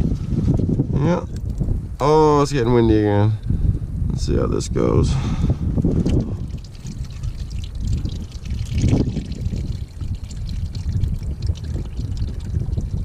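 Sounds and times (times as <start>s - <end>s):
wind buffeting microphone: 0.0s - 13.0s
oil trickling into a pan: 5.8s - 13.0s.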